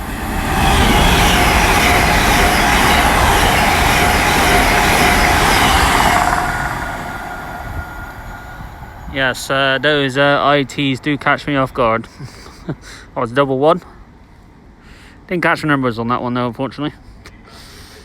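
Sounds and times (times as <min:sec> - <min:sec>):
train passing at speed: 0:00.0 - 0:12.1.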